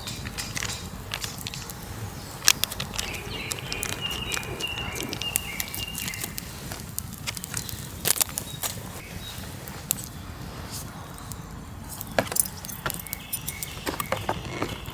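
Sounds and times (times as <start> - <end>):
sharp clicks and knocks: 0.0 - 5.5
bird singing high notes: 0.0 - 6.6.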